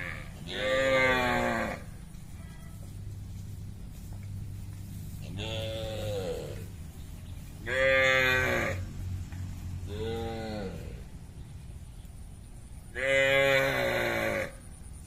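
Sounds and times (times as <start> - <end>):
cattle mooing: 0.0 - 1.9, 5.3 - 6.7, 7.6 - 8.9, 9.8 - 11.0, 13.0 - 14.6.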